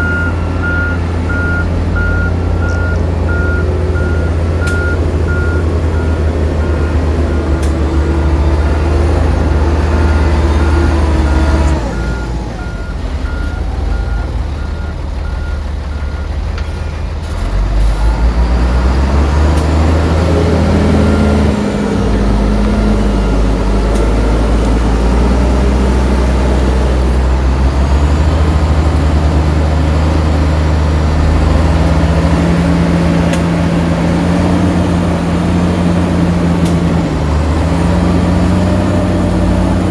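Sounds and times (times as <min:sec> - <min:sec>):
reversing alarm beeping: 0:00.0 - 0:16.4, 0:19.8 - 0:26.6
heavy diesel engines under load: 0:00.0 - 0:39.9.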